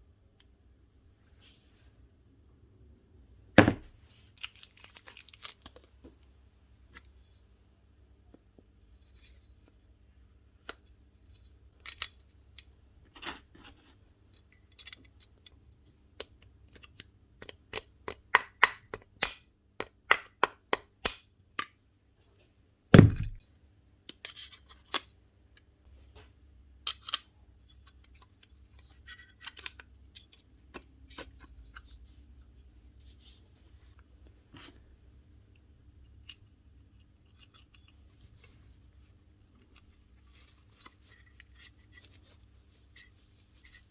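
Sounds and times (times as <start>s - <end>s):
heavy knock: 23.0s - 23.4s.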